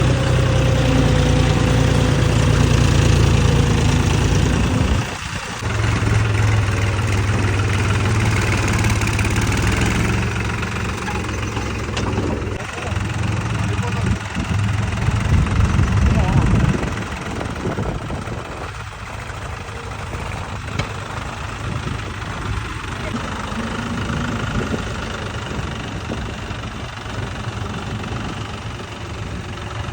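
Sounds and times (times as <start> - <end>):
diesel tractor engine running: 0.0 - 29.9.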